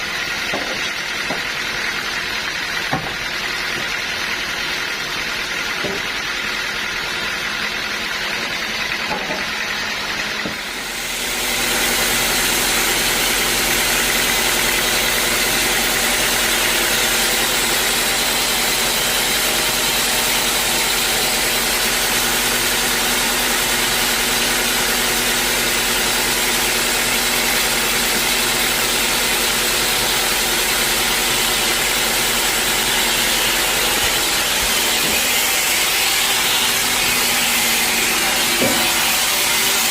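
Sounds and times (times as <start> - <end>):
saw cutting through log: 0.0 - 39.9
sawmill engine running: 0.0 - 39.9.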